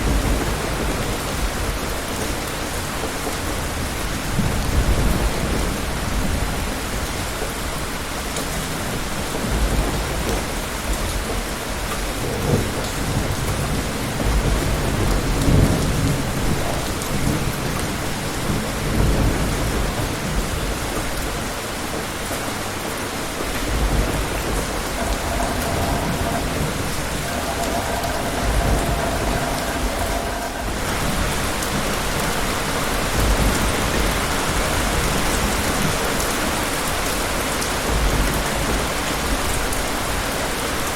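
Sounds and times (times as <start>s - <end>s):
steady rain falling: 0.0s - 40.9s
distant thunder rumbling: 12.2s - 21.0s, 23.1s - 36.0s.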